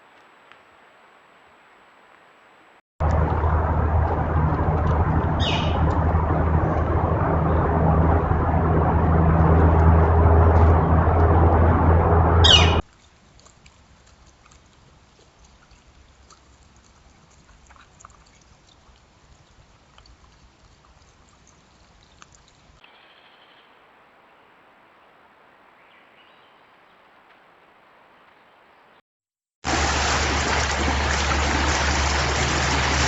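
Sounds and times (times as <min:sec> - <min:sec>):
loud steady rushing noise: 0:03.0 - 0:12.8
low hum: 0:03.0 - 0:12.8.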